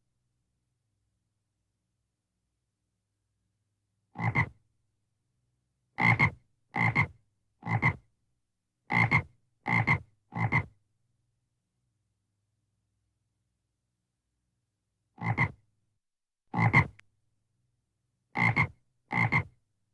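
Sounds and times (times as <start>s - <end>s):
frog croaking: 4.2s - 4.5s, 15.2s - 15.6s, 18.4s - 19.5s.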